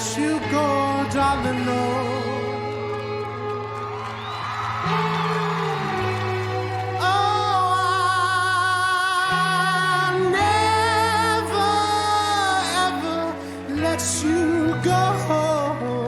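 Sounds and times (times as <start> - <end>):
person singing wordless notes: 0.0 - 3.5, 6.9 - 16.0.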